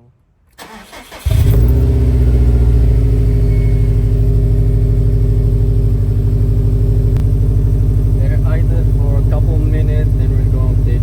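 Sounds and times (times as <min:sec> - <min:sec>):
car engine idling rumble: 0:00.6 - 0:11.0.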